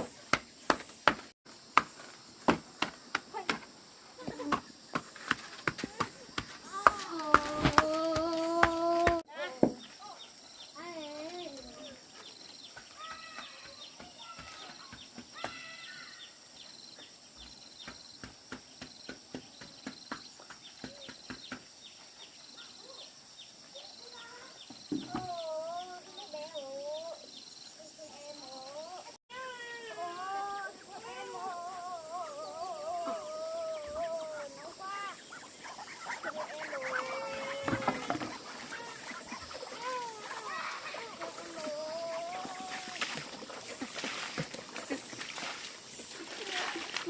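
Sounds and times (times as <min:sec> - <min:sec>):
insects chirping in high trills: 0:00.0 - 0:47.0
bird-like chirps: 0:33.7 - 0:41.4.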